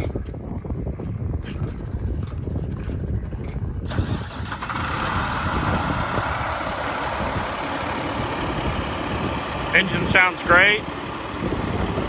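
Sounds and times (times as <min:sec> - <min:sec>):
diesel engine starting and idling: 0:03.8 - 0:12.0.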